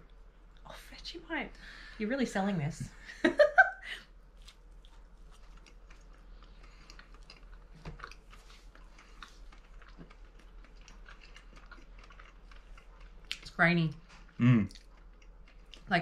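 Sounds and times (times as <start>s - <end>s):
people chewing toast: 4.0s - 16.0s.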